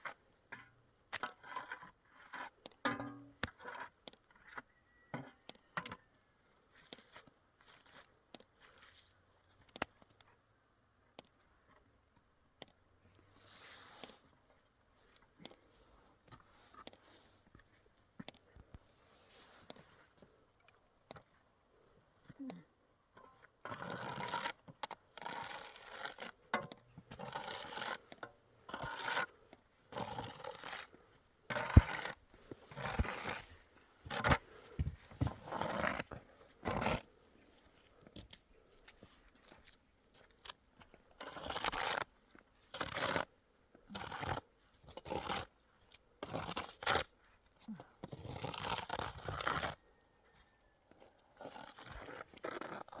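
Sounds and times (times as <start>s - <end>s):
crunching and crinkling: 23.3s - 53.0s.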